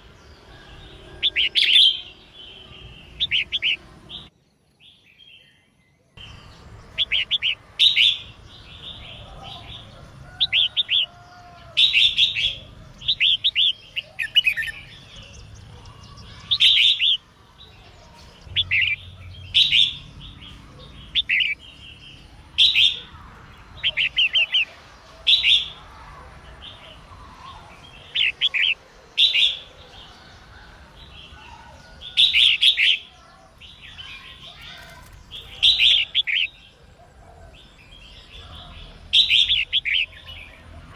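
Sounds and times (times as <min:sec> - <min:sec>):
bird singing chirpy phrases: 0:00.0 - 0:40.9.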